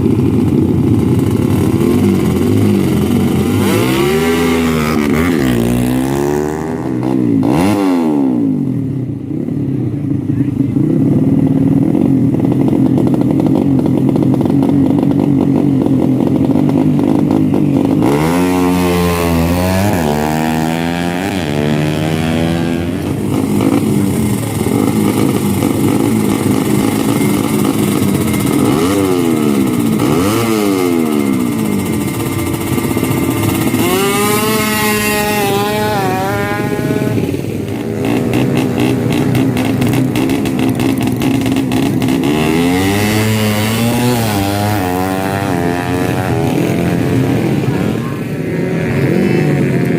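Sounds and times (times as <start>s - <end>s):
motorcycle engines revving: 0.0s - 49.9s.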